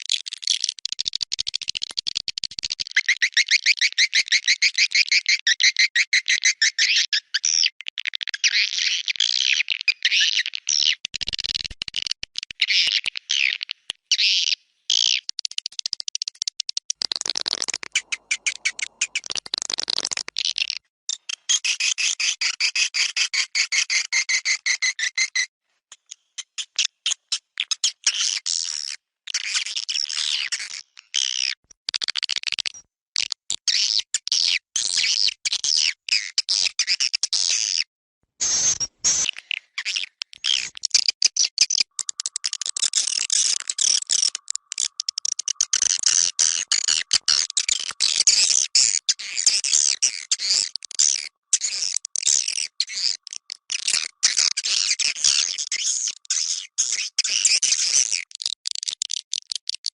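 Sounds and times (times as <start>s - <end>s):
swiftlets chirping and twittering: 17.9s - 19.4s.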